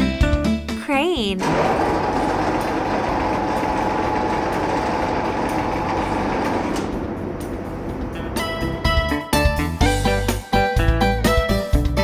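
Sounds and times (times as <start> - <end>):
children's music: 0.0 - 1.5
vehicle engine running: 2.0 - 9.0.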